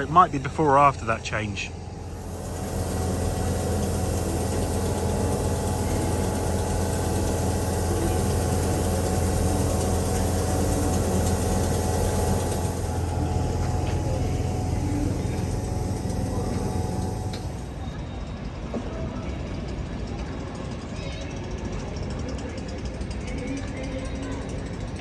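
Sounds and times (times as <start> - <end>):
train engine humming: 0.0 - 18.0.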